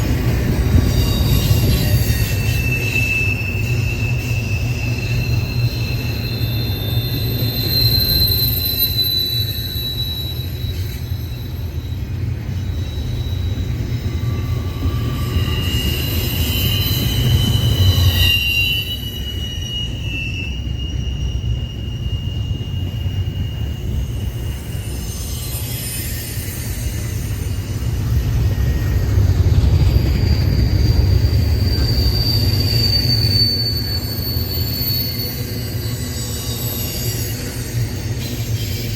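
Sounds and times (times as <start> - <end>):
freight train rumbling past: 0.0 - 38.9
train wheel squeal: 0.0 - 38.9.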